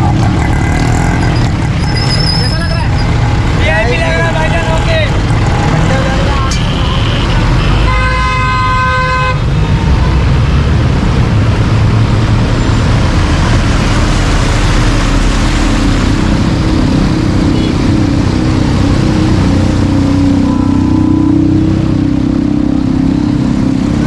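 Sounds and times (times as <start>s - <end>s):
engines and road noise: 0.0s - 24.0s
vehicle horn blaring: 6.2s - 10.2s, 20.4s - 21.4s.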